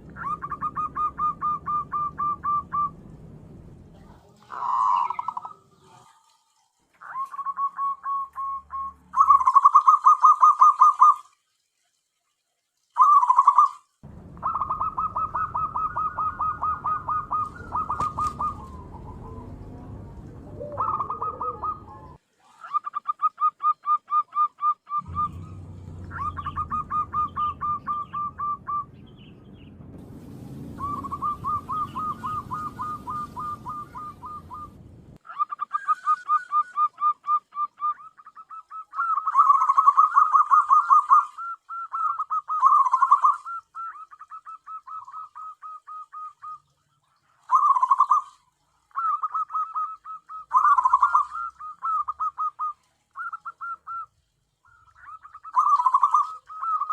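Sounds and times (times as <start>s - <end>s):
dove cooing: 0.1s - 3.1s, 4.0s - 6.3s, 7.0s - 11.2s, 14.4s - 29.2s, 30.7s - 46.6s, 47.4s - 56.9s
low rumble: 1.0s - 4.3s, 14.0s - 22.1s, 25.0s - 35.2s.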